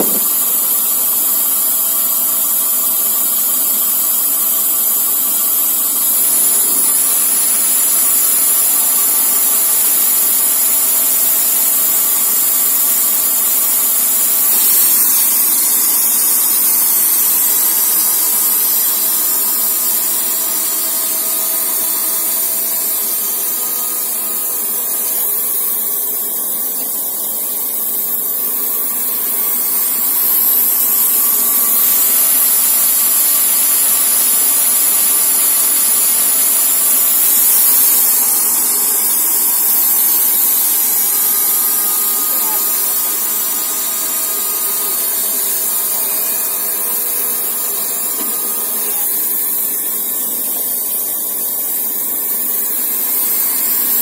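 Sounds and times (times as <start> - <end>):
band sawmill sawing log: 0.0 - 54.0.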